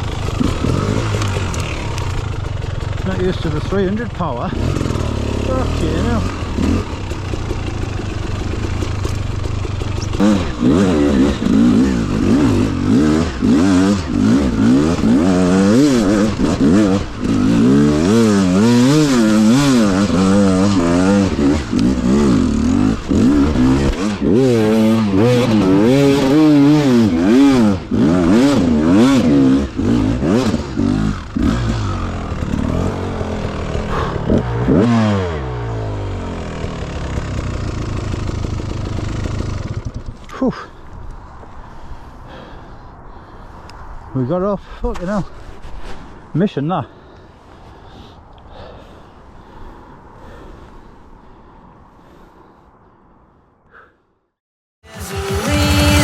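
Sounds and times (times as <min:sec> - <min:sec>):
two-stroke motorcycle engine revving: 0:00.0 - 0:40.5, 0:54.9 - 0:56.0.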